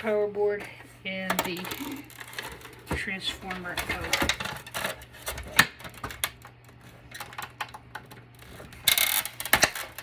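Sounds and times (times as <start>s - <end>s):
plastic and metal parts clattering: 1.2s - 10.0s.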